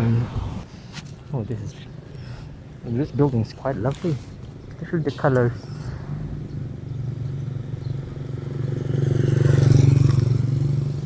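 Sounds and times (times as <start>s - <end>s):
vehicle engine passing by: 0.0s - 0.7s, 5.5s - 11.0s.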